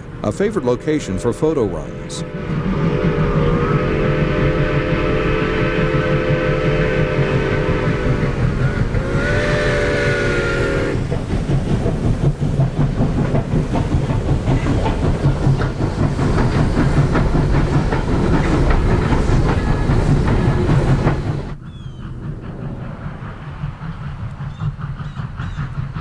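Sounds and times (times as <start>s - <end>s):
train rumbling by: 0.0s - 26.0s
steam whistle blasts: 0.3s - 11.0s
wheels clattering over rails: 10.8s - 26.0s.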